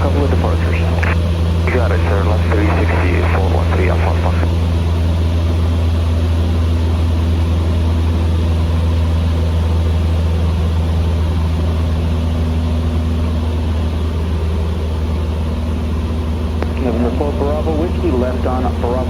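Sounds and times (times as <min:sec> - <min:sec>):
airplane engine droning: 0:00.0 - 0:19.0.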